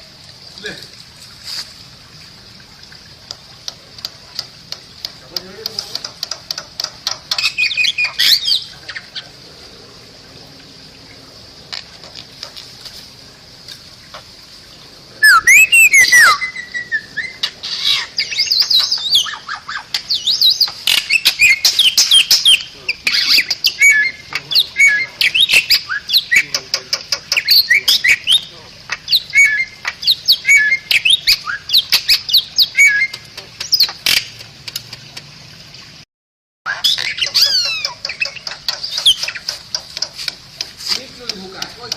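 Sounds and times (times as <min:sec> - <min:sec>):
steady high hiss: 0:00.0 - 0:34.9, 0:37.3 - 0:41.9
myna chattering and whistling: 0:15.2 - 0:34.2.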